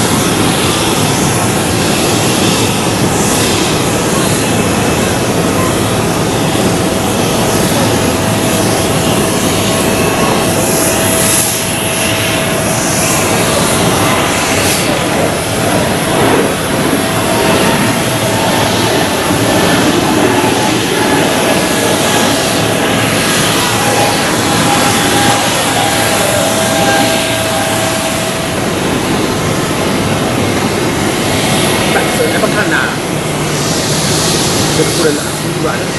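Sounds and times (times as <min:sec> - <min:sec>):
jet engines roaring on runway: 0:00.0 - 0:35.9.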